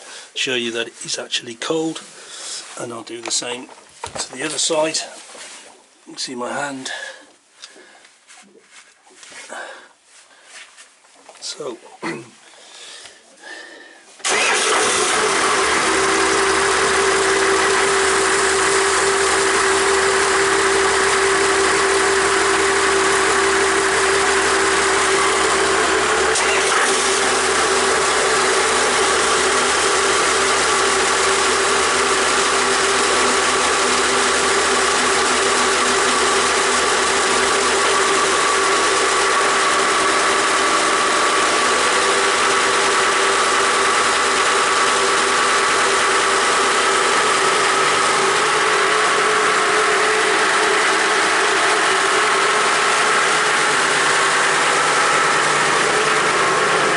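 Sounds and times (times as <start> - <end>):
boat engine idling with clatter: 27.4 - 56.9.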